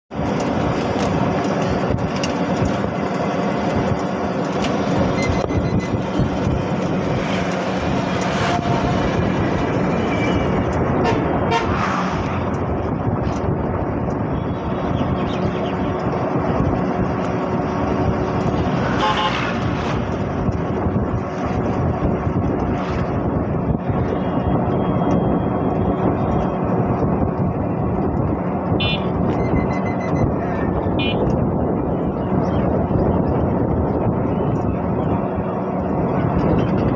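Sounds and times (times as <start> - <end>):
road traffic: 0.0 - 36.9
vehicle horns tooting: 9.9 - 11.8, 19.0 - 19.6, 28.8 - 30.2, 31.0 - 31.3.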